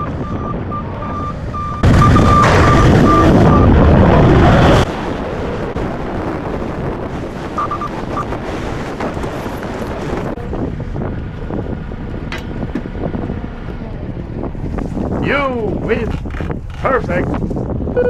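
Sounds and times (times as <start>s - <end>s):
reversing alarm beeping: 0.0s - 3.8s, 7.6s - 8.3s
forklift engine running: 0.0s - 4.1s
wind noise on microphone: 0.0s - 18.0s.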